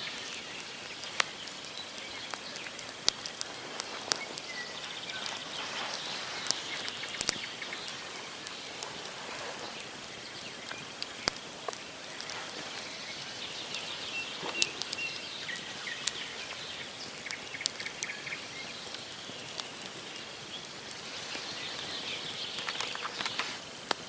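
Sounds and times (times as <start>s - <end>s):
birds chirping: 0.0s - 23.7s
campfire crackling and popping: 0.0s - 24.0s.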